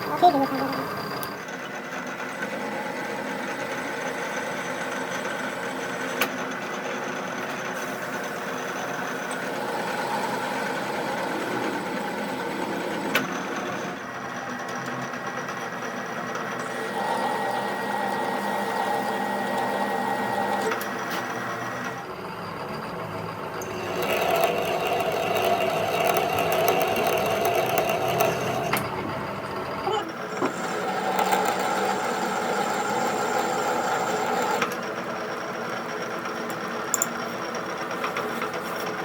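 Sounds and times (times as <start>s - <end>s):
machine running: 0.0s - 39.0s.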